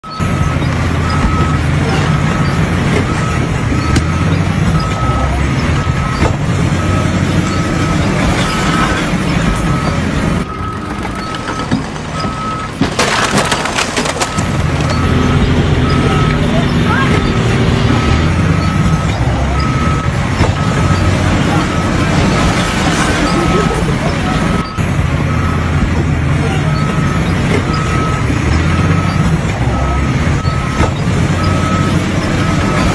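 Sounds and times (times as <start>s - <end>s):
diesel engine running: 0.0s - 32.9s
reversing alarm beeping: 0.0s - 32.9s
loud clattering: 7.8s - 18.4s.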